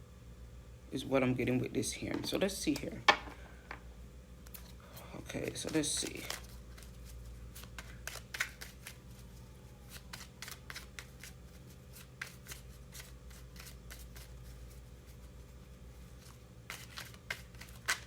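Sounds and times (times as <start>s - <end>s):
cards being shuffled: 4.5s - 15.4s, 16.0s - 18.0s.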